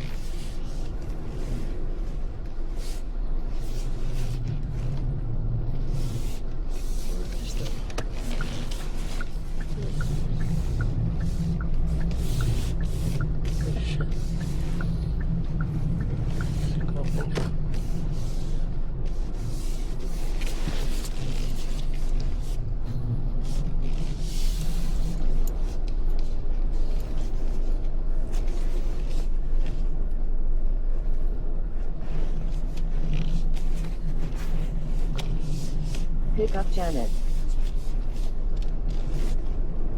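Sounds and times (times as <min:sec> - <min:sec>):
car engine and tyre rumble: 0:00.0 - 0:39.9
car engine: 0:05.5 - 0:20.2
indicator ticking: 0:08.4 - 0:17.2.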